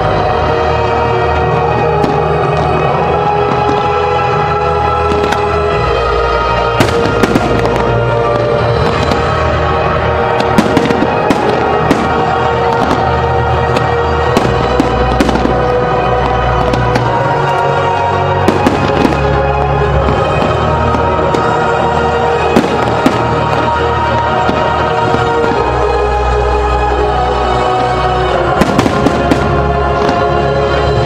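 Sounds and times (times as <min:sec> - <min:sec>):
loud music over loudspeakers: 0:00.0 - 0:31.0
fireworks bursting: 0:01.3 - 0:31.0.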